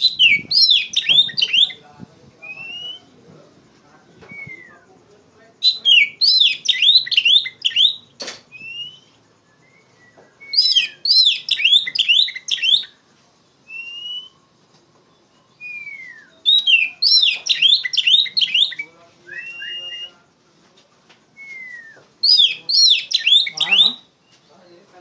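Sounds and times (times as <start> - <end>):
bird chattering song: 0.0 - 1.8, 5.6 - 9.2, 9.8 - 13.0, 15.1 - 20.1, 21.9 - 24.8
bird whistled slurs: 0.0 - 1.8, 2.4 - 3.1, 4.2 - 4.8, 5.7 - 13.0, 13.7 - 14.4, 15.6 - 20.2, 21.4 - 24.4.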